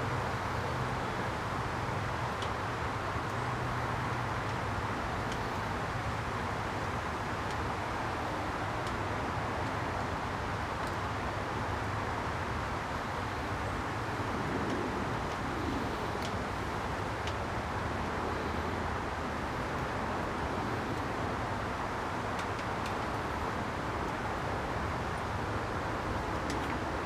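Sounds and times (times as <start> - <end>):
rushing noise with low hum: 0.0 - 27.0
faint light clicks: 5.2 - 6.1.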